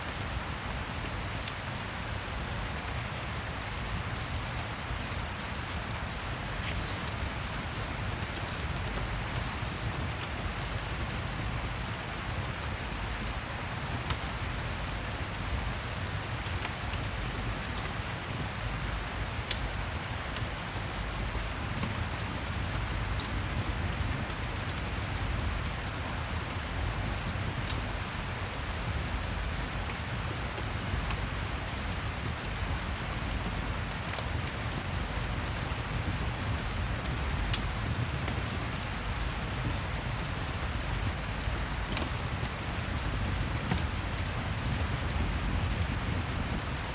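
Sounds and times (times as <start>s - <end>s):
fireplace crackling: 0.0s - 12.6s, 35.4s - 46.9s
steady rain: 0.0s - 46.9s.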